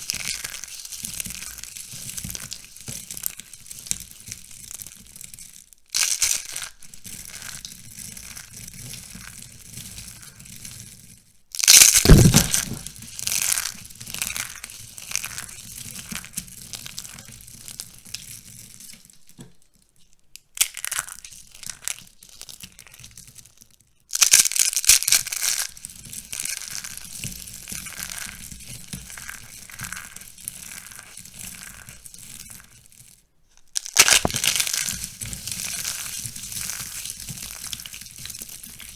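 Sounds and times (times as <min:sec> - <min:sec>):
dried soap being crushed: 0:33.8 - 0:35.0.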